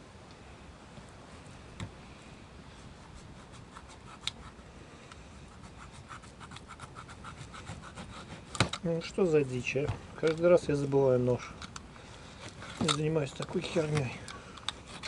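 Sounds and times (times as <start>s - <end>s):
knife scratching through meat: 2.9s - 4.6s, 5.5s - 8.6s.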